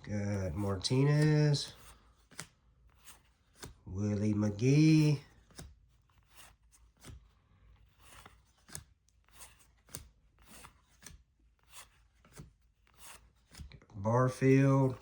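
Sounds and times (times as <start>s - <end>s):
trading cards flicking: 0.5s - 3.8s, 8.0s - 13.7s.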